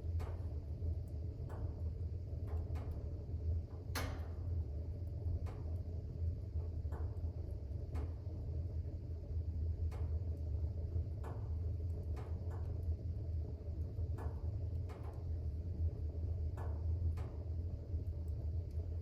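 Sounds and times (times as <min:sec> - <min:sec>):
fire crackles and pops: 0:00.0 - 0:19.0
wood fire rumbling: 0:00.0 - 0:19.0.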